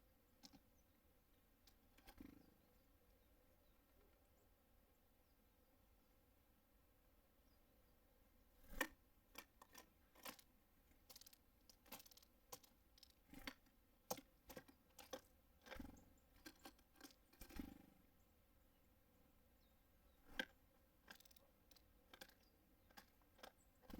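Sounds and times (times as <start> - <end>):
birds pecking at seed: 0.3 - 0.9, 1.6 - 4.3, 8.6 - 18.1, 20.1 - 23.9.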